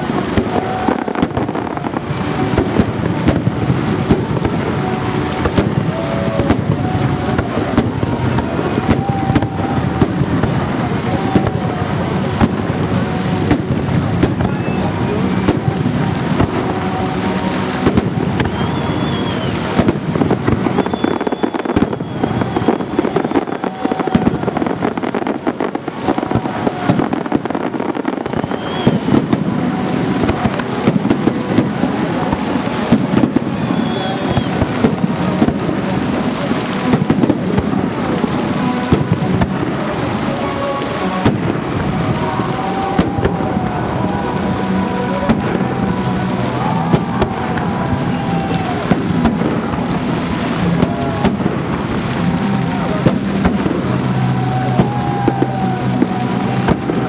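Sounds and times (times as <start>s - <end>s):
fireworks bangs: 0.0s - 57.0s
fireworks whistles: 0.0s - 57.0s.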